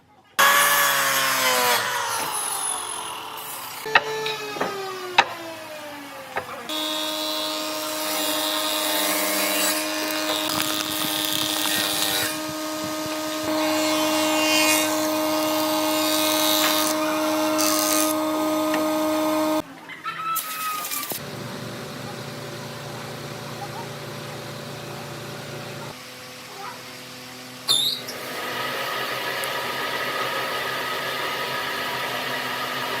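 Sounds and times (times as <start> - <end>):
power tool cutting wood: 0.4 - 19.6, 28.1 - 33.0.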